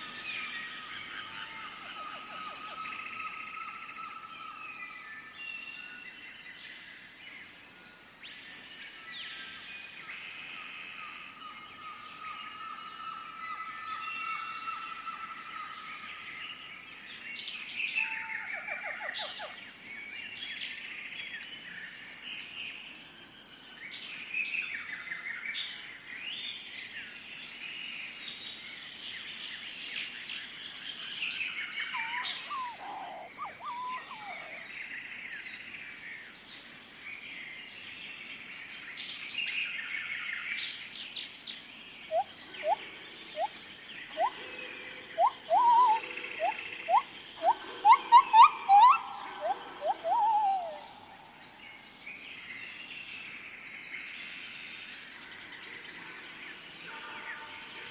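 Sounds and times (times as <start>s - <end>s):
songbirds chirping and trilling: 0.0s - 57.9s
loud rising bird chirps: 45.2s - 51.0s.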